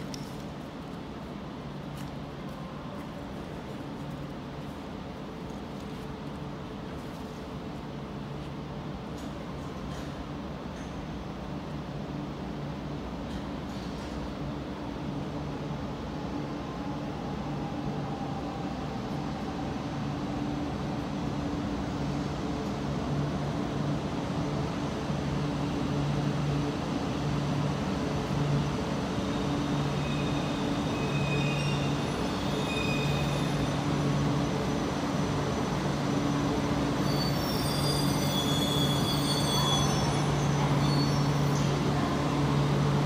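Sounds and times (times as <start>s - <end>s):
train electric hum: 0.0s - 43.0s
high squealing brakes: 29.2s - 41.9s.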